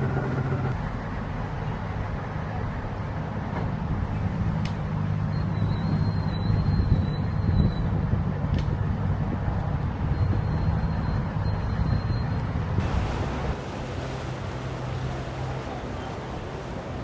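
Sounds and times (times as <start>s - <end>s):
motorboat engine hum: 0.0s - 2.1s, 2.7s - 17.0s
wind: 0.0s - 17.0s
water noise: 6.6s - 17.0s.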